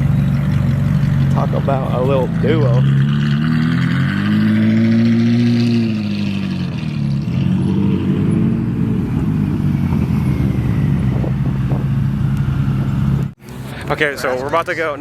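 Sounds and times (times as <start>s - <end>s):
car engine idling: 0.0s - 3.6s.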